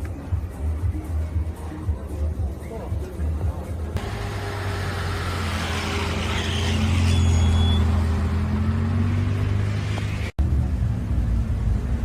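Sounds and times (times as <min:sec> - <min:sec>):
vehicle engine rumbling: 0:03.6 - 0:12.0.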